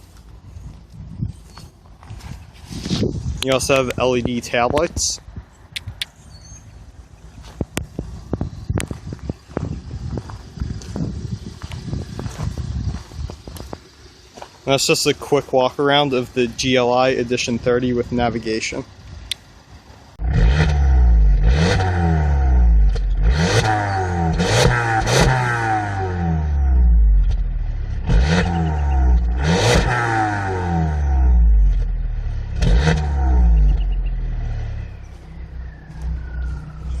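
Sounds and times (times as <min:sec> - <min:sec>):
car engine revving: 0:20.2 - 0:37.0.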